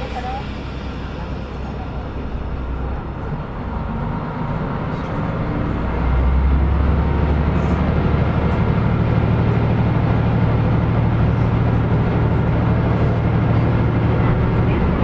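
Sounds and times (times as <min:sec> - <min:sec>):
diesel railcar engine humming: 0:00.0 - 0:15.0.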